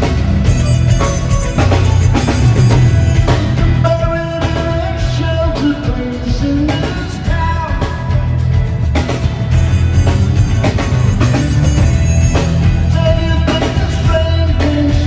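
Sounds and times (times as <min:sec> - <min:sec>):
sustained melody notes: 0:00.0 - 0:05.6
live rock band playing: 0:00.0 - 0:15.0.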